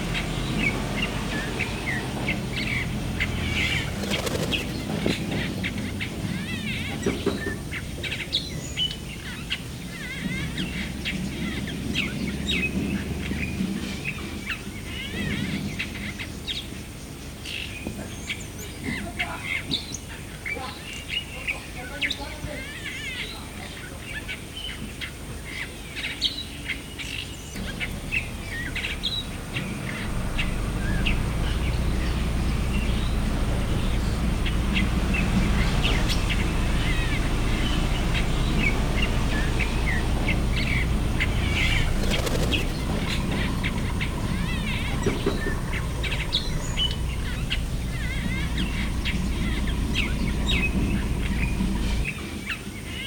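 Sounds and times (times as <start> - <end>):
birds chirping and calling: 0.0 - 14.0, 27.1 - 52.6
steady low rumble: 2.4 - 6.5, 27.6 - 52.2.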